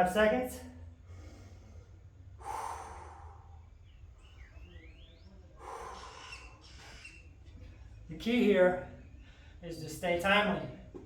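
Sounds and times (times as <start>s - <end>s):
steady low hum: 0.0s - 11.0s
man breathing hard: 0.9s - 4.3s, 5.5s - 8.0s, 9.1s - 9.6s
faint rising chirp: 2.9s - 9.5s.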